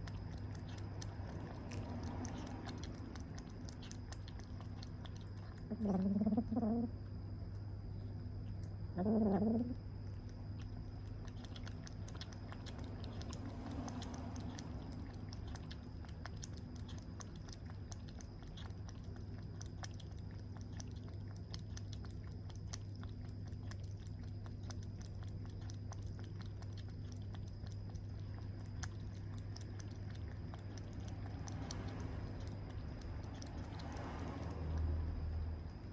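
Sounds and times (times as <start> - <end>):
steady low hum: 0.0 - 35.9
faint clicking: 7.1 - 8.8, 9.5 - 35.9.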